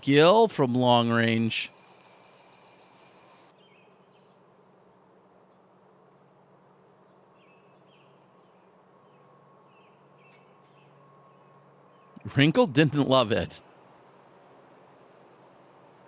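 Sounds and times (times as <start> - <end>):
faint insect buzz: 0.0 - 12.2.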